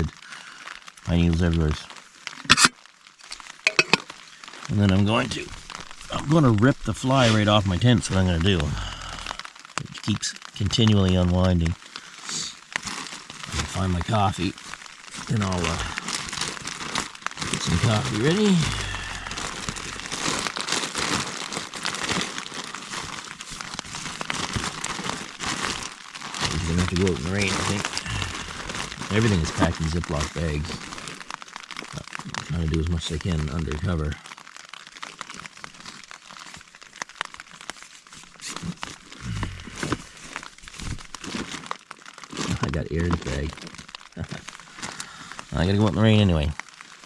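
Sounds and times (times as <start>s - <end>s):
plastic bags crinkling: 0.0s - 47.0s.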